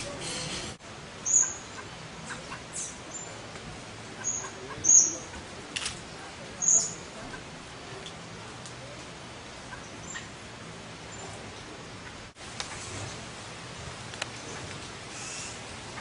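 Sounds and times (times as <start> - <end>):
background hiss: 0.0 - 16.0
songbirds high chip calls: 1.2 - 3.4, 4.2 - 5.3, 6.6 - 7.1, 9.7 - 10.4, 15.1 - 15.6.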